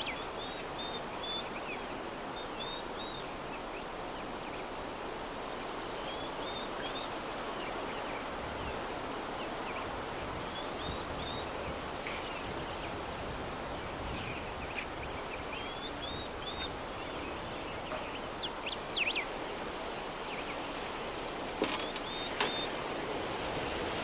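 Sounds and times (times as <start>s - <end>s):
soft breeze rustling: 0.0s - 24.0s
small birds chirping and whistling: 13.9s - 19.6s, 21.8s - 22.8s.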